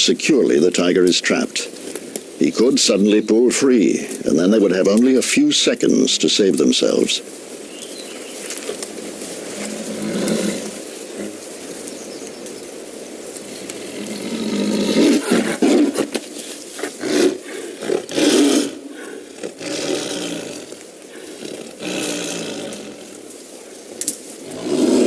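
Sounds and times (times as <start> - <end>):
tiger snarling and roaring: 8.9 - 11.7, 13.4 - 23.6, 24.4 - 25.0.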